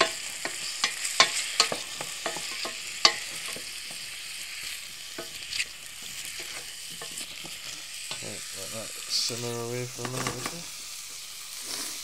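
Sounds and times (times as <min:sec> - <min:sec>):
utensil knocking against a pan: 0:00.0 - 0:04.1
vegetables sizzling in a pan: 0:00.0 - 0:12.0.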